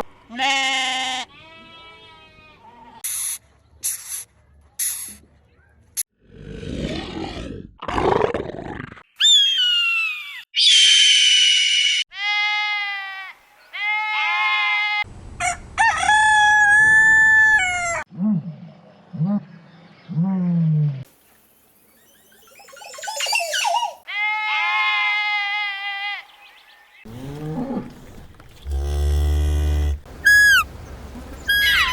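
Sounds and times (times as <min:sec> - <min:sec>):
animal calls: 0:22.4 - 0:24.1, 0:27.1 - 0:31.9.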